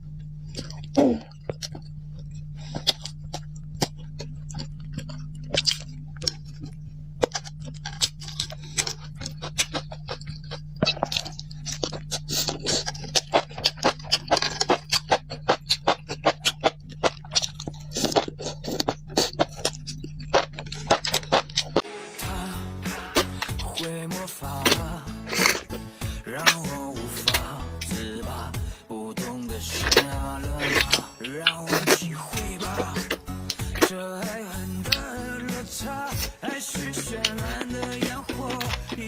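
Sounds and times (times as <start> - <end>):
crunching and chewing: 0.0 - 39.0
steady low hum: 0.0 - 39.0.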